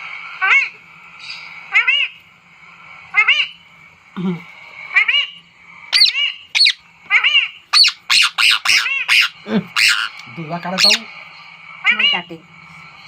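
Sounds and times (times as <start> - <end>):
parrot calling: 0.4 - 2.2, 3.0 - 3.6, 4.8 - 11.1, 11.8 - 12.3.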